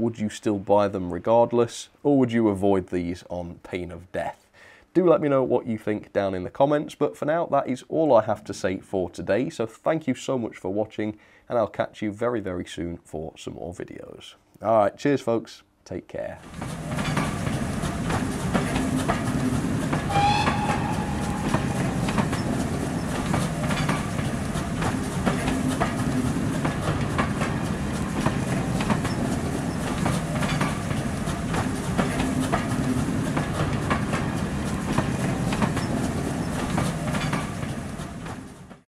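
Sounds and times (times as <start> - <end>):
passenger train rumbling past: 16.5 - 38.8
wheels clacking over rail joints: 16.5 - 38.8
brief high tone: 20.1 - 22.6.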